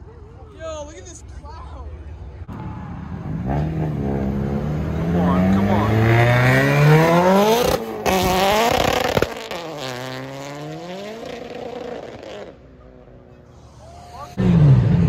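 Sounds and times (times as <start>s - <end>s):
car engine accelerating hard: 3.2s - 12.6s.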